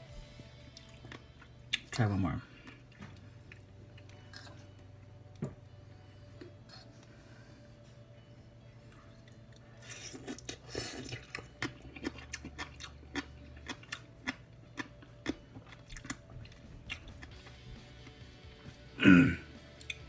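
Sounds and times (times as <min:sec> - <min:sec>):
person chewing crunchy food: 0:09.3 - 0:17.6.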